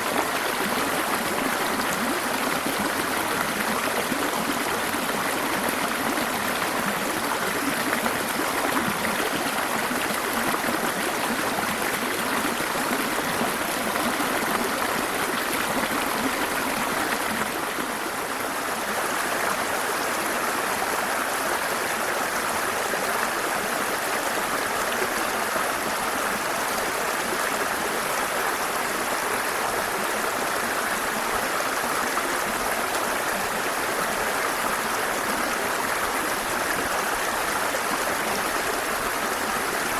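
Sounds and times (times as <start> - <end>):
waterfall and stream rushing: 0.0 - 39.9.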